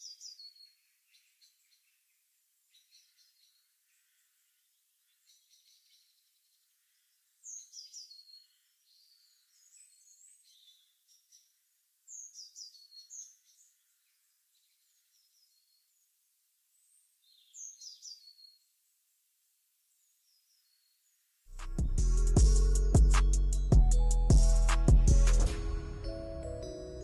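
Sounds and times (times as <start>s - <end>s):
faint birdsong chirping: 0.0s - 21.4s.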